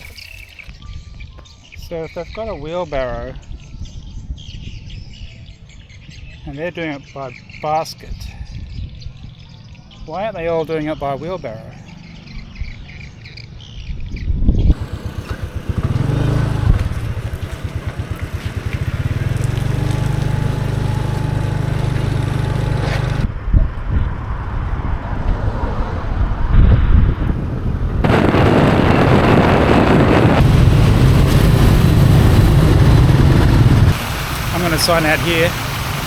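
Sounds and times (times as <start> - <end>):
scooter engine running: 14.7 - 23.3, 29.0 - 34.2
wind noise rushing: 22.2 - 36.0.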